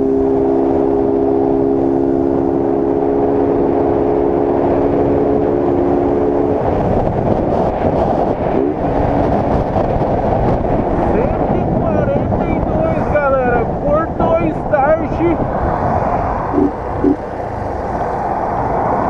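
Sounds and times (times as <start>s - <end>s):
wind rush: 0.0s - 19.0s
motorcycle engine: 16.4s - 17.8s.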